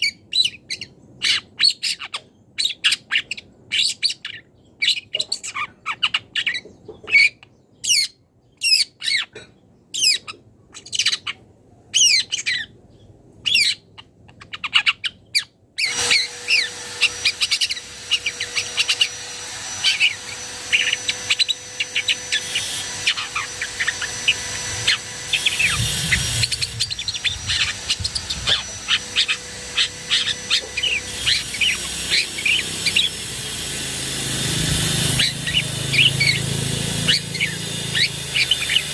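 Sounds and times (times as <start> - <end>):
bird singing sharp chirps: 35.0 - 38.9.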